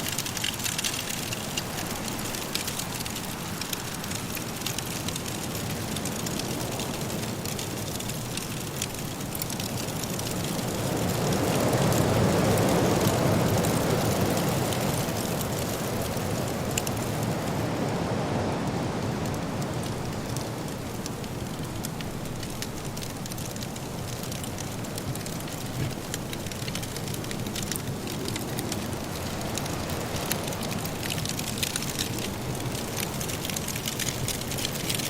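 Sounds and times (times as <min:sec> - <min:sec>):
wood fire crackling: 0:00.0 - 0:35.0
blizzard wind rushing: 0:24.5 - 0:35.0.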